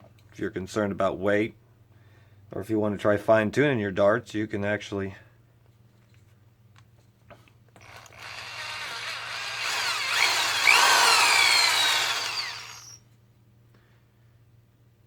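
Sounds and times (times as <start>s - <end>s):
electric drill boring into wood: 7.8s - 13.0s.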